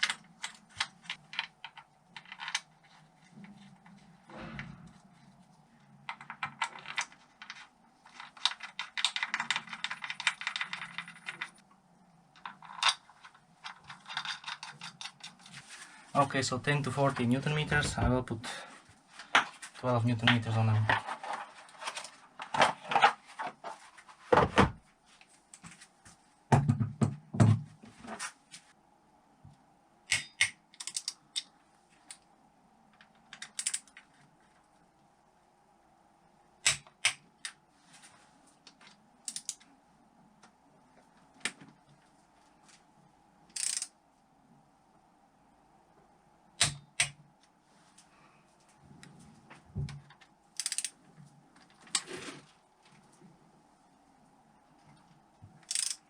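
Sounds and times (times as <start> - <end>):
faint steady hum: 0.0 - 56.0
metal tool clicks and knocks: 30.1 - 31.5.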